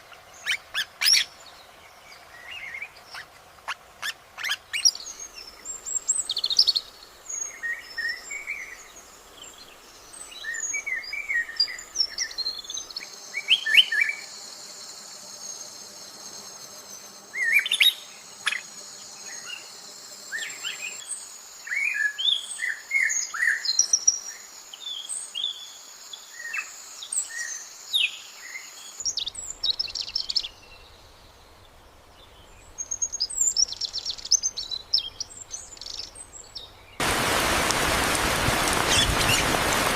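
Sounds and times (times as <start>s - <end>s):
birds chirping: 29.0s - 39.9s.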